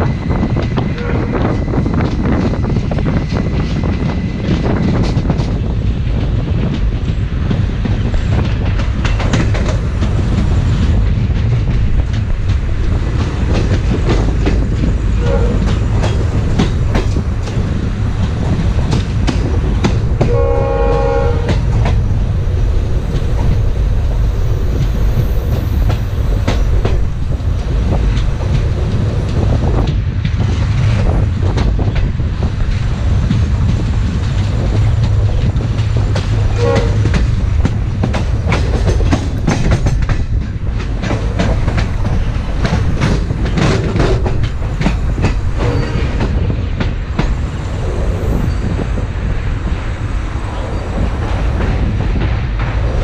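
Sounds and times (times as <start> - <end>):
train rumbling at speed: 0.0 - 53.0
train horn: 1.0 - 1.5, 15.2 - 15.9, 20.2 - 21.9, 36.5 - 37.2, 45.6 - 46.2.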